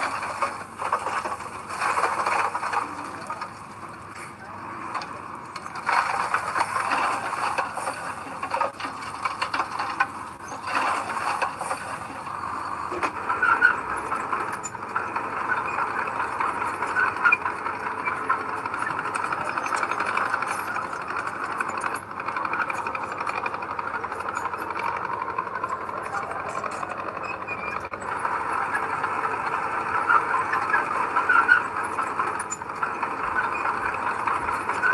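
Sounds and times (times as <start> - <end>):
heavy machinery droning: 0.0 - 34.9
small clicks and rattles: 0.0 - 34.9.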